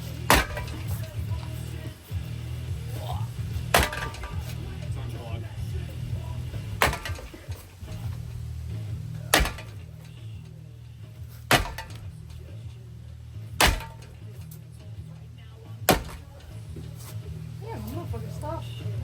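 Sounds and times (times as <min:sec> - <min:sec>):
clanking blows on ceiling fan: 0:00.0 - 0:19.0.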